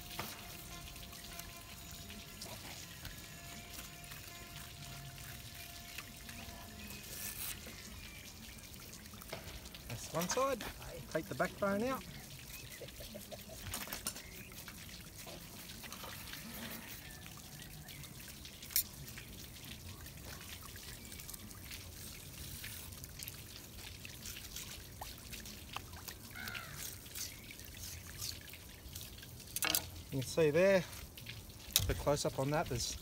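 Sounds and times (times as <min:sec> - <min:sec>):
water trickling: 0:00.0 - 0:33.0.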